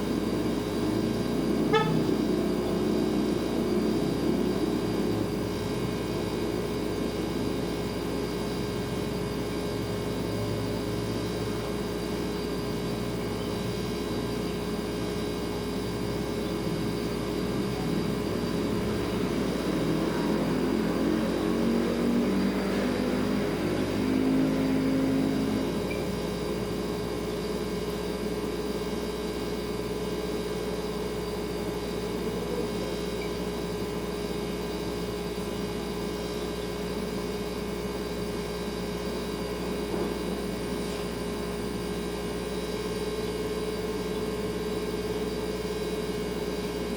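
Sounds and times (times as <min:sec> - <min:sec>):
refrigerator humming: 0:00.0 - 0:46.9
wavering noise: 0:01.7 - 0:03.2.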